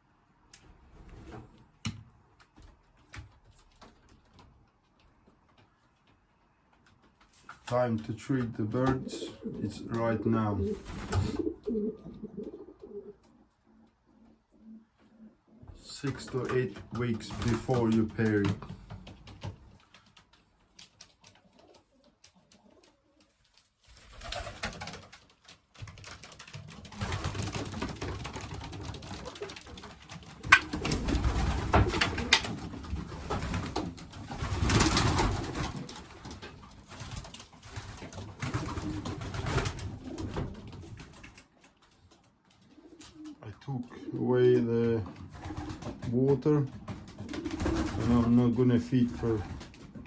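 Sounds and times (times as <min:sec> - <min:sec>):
pigeons cooing: 0:08.8 - 0:15.8, 0:29.2 - 0:32.9.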